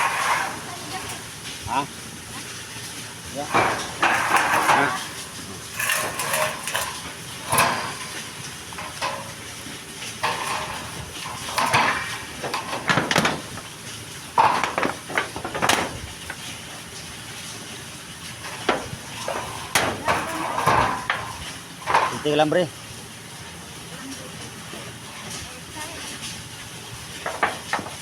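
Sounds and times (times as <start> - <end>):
metal clinks and knocks: 3.4 - 13.7, 14.3 - 16.5.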